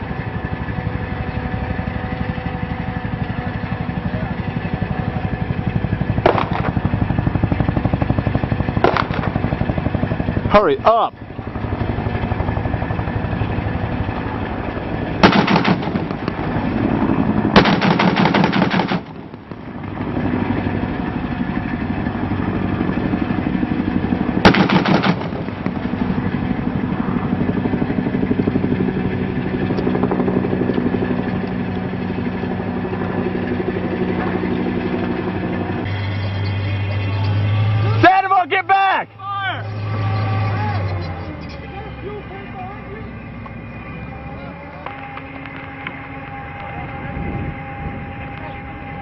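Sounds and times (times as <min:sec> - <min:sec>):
vehicle engine running: 0:00.0 - 0:49.0
automatic gunfire bursts: 0:06.2 - 0:06.8, 0:08.8 - 0:09.4, 0:15.2 - 0:16.1, 0:17.5 - 0:19.3, 0:24.4 - 0:25.5.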